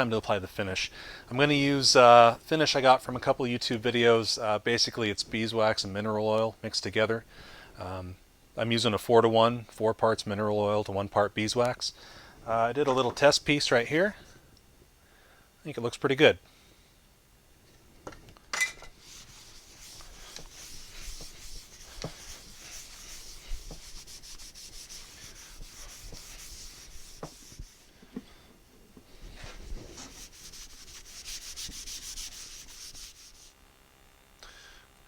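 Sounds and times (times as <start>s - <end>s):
rubbing hiss on wood: 19.0s - 33.6s.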